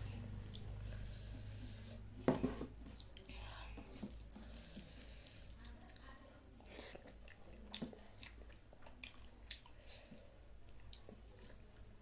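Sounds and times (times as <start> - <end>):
wet mouth clicks and smacks: 0.4 - 0.8
person chewing food: 0.4 - 2.0, 2.6 - 11.6.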